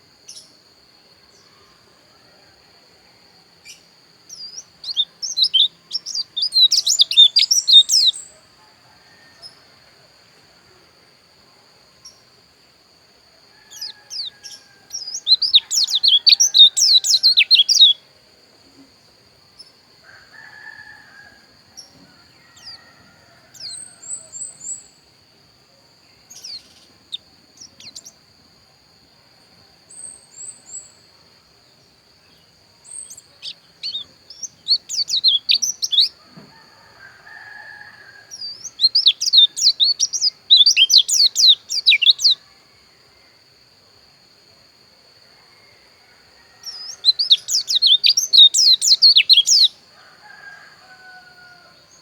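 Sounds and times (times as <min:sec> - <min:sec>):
songbird twittering: 0:03.6 - 0:08.4, 0:13.7 - 0:18.0, 0:26.3 - 0:28.2, 0:32.3 - 0:36.2, 0:37.5 - 0:42.4, 0:46.6 - 0:49.8
single bird chirps: 0:32.8 - 0:36.6.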